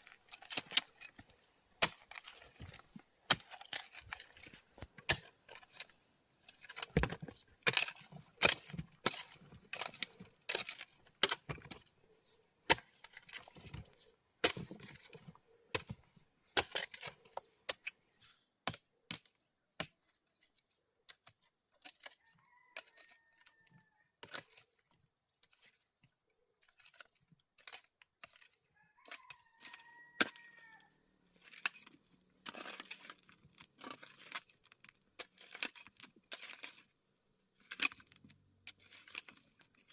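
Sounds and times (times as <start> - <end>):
knocks of stone work: 6.5 - 11.9.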